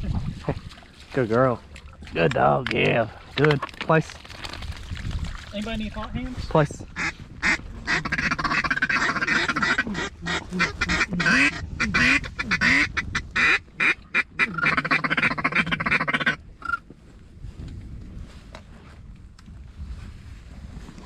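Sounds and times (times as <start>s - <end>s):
duck call quacking: 7.0s - 16.8s.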